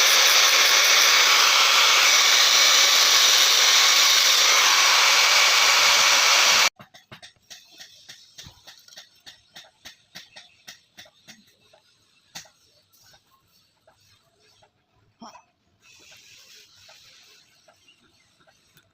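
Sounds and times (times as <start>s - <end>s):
small machine rushing noise: 0.0s - 6.7s.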